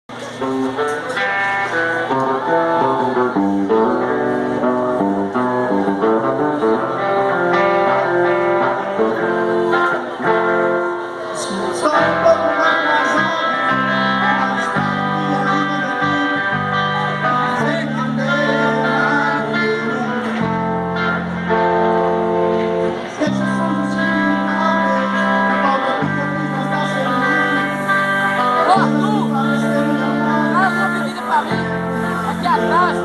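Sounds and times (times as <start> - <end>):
song with plucked guitar: 0.1 - 33.0.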